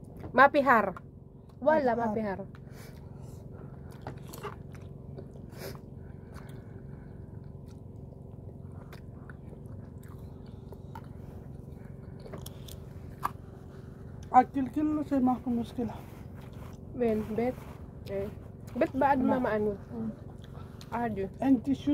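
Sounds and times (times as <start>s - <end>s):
steady low hum: 0.0s - 21.9s
person chewing food: 2.5s - 14.4s, 16.2s - 16.9s, 20.2s - 21.0s.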